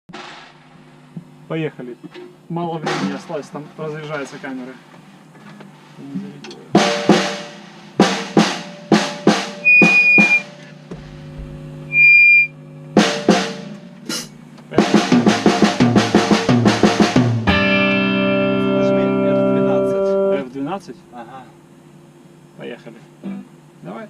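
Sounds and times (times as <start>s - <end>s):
drum kit playing: 0.1s - 1.3s, 2.8s - 3.4s, 6.1s - 20.4s.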